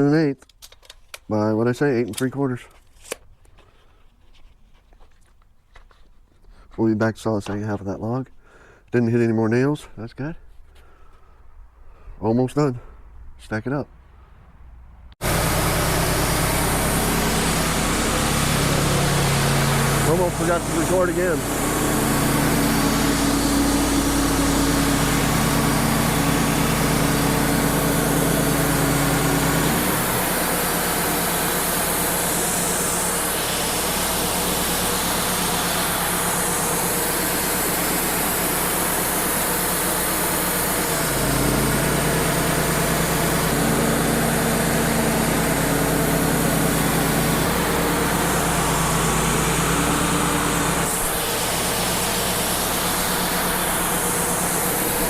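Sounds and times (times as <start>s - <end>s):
bandsaw cutting log: 15.2s - 55.0s
portable sawmill running: 15.2s - 55.0s.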